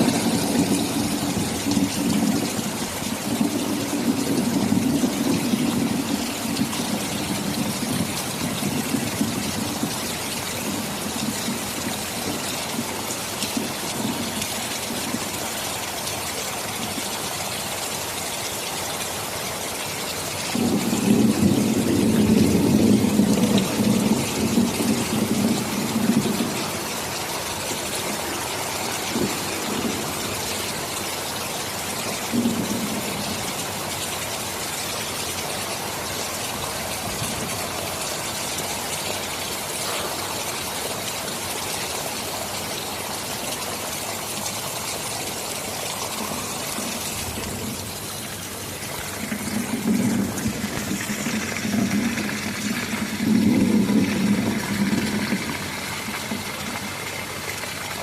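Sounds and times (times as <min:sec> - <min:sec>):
thunder rumbling: 0:00.0 - 0:15.4, 0:20.5 - 0:33.8, 0:45.9 - 0:58.0
heavy rain: 0:00.0 - 0:58.0.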